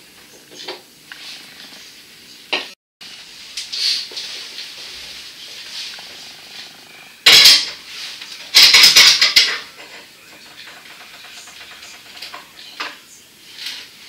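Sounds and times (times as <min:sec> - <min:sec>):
hard objects clattering: 0:05.9 - 0:13.0.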